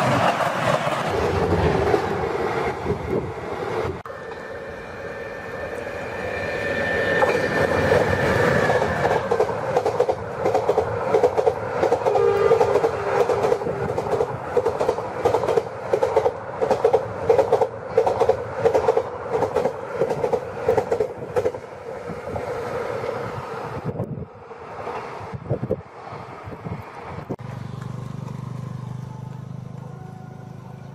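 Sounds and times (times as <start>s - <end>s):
train wheels clickety-clack: 7.2s - 21.6s
train horn two tones: 12.2s - 12.7s.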